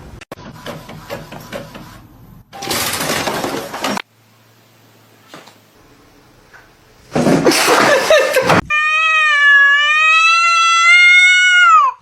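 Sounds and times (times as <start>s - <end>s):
cat crying and meowing: 8.7s - 12.0s.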